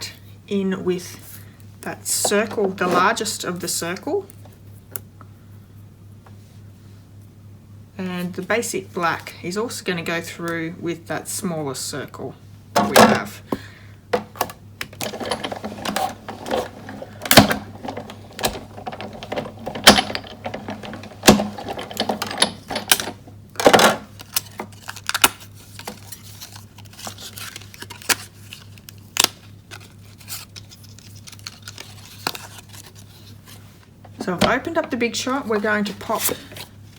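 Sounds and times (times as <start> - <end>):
die-cutting machine cranking: 15.0 - 23.2.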